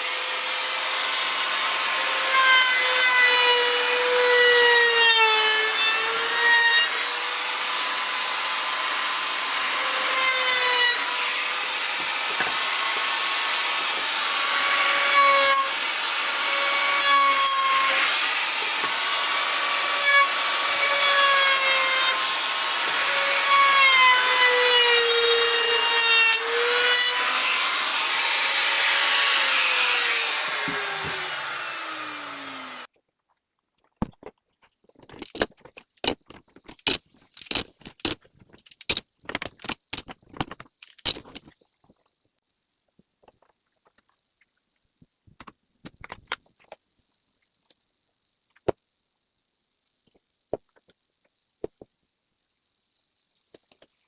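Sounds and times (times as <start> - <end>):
electric power tool on wood: 0.0 - 32.9
sharp wooden clicks and knocks: 35.0 - 41.6.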